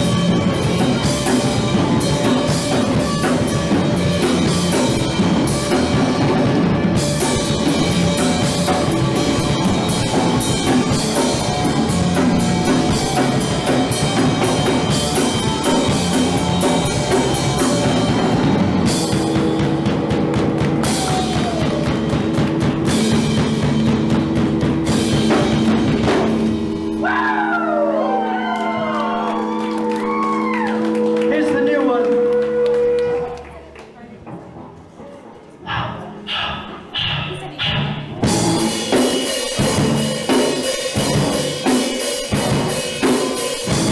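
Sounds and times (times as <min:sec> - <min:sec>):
punk rock band playing live: 0:00.0 - 0:27.6, 0:38.2 - 0:43.9
drum kit: 0:00.0 - 0:33.4, 0:35.7 - 0:43.9.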